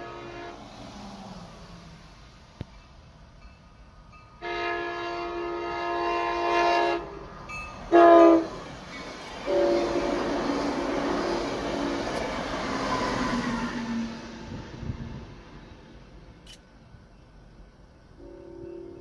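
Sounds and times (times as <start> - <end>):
locomotive air horn blasts: 0.0 - 0.8, 4.4 - 7.3, 7.9 - 8.7, 9.4 - 12.2, 18.2 - 19.0
train running noise: 0.0 - 19.0.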